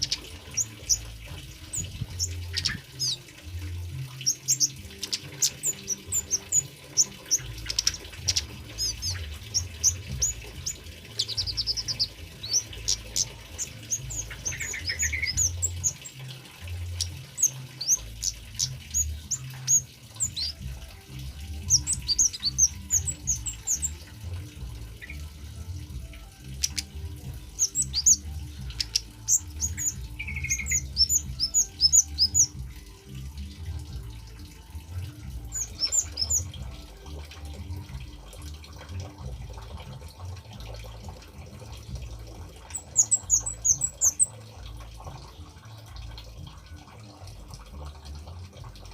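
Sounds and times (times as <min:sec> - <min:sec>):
bird chirping: 0:00.0 - 0:25.6, 0:26.5 - 0:32.8, 0:35.5 - 0:36.8, 0:42.6 - 0:45.2
trickle of running water: 0:00.0 - 0:48.9.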